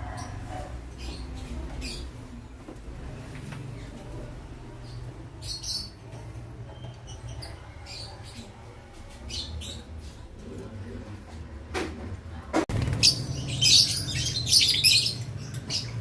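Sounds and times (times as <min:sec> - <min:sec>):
lovebirds chirping and squeaking: 0:00.0 - 0:10.3, 0:12.7 - 0:16.0.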